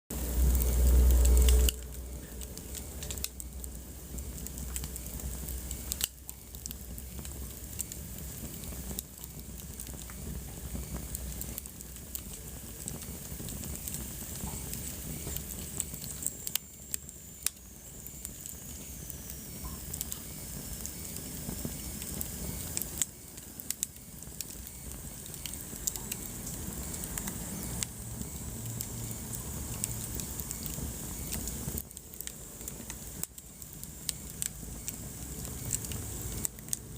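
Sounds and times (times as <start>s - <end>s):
wood fire crackling: 0.1s - 36.9s
faint high whistle: 14.5s - 29.2s.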